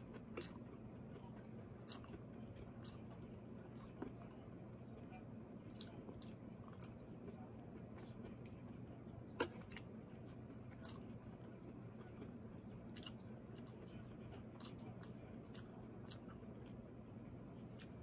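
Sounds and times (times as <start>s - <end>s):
chewing with soft crunches: 0.0s - 18.0s.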